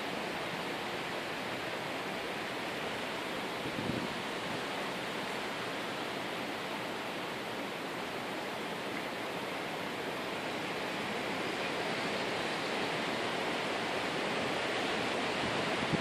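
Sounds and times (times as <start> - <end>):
steady outdoor rushing noise: 0.0 - 16.0.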